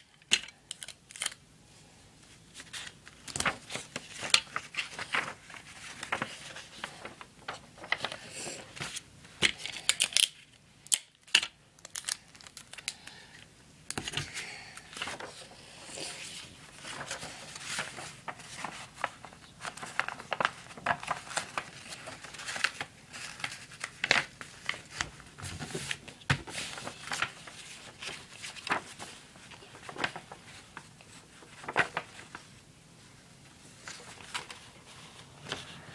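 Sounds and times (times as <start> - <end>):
paper crinkling: 0.0 - 1.4, 2.3 - 13.2, 14.0 - 35.8.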